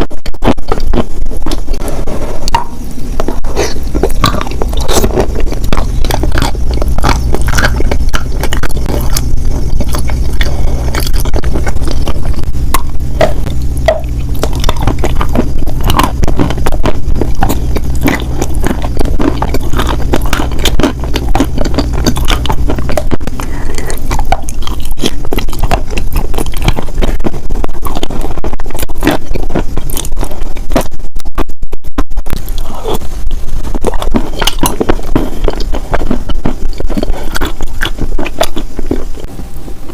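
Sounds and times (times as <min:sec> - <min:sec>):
steady low hum: 0:00.0 - 0:39.9
scraping and crunching: 0:00.4 - 0:30.9
small crackles and clicks: 0:14.4 - 0:31.0.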